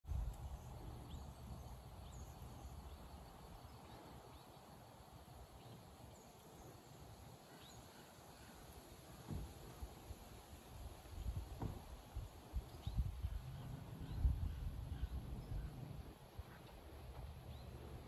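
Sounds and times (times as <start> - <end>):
faint background hiss: 0.1 - 18.0
low rumble: 12.8 - 16.2.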